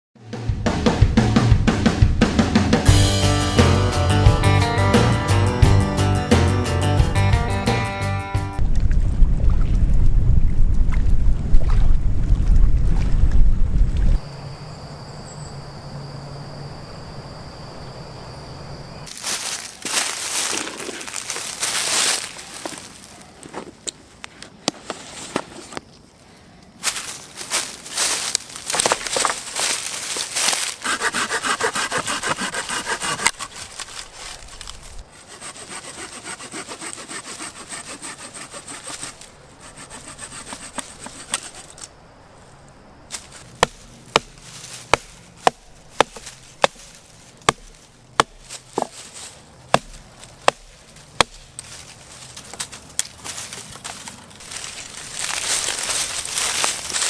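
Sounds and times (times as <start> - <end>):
hand saw cutting wood: 30.6 - 41.9
sharp wooden knocks: 47.5 - 48.9.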